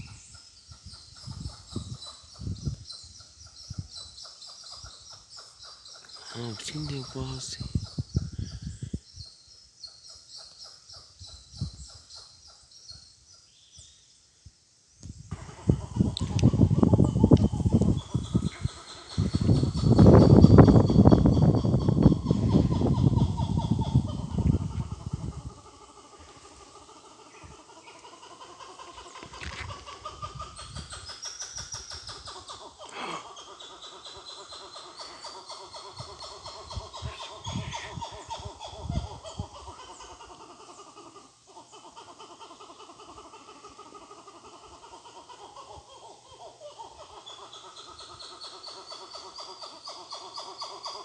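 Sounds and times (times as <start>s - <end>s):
monkeys calling: 4.0s - 8.8s, 15.3s - 51.0s.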